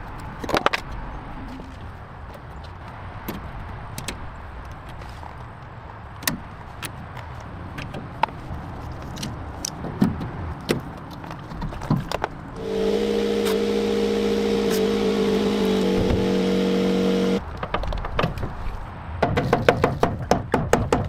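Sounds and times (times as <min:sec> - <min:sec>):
steady machine hum: 0:12.6 - 0:17.4.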